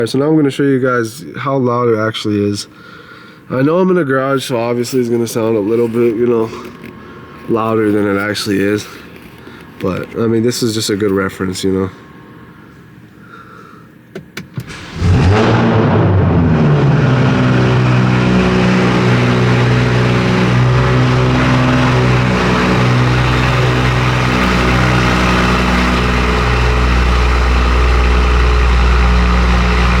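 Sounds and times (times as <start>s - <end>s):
car engine starting and idling: 14.1s - 30.0s.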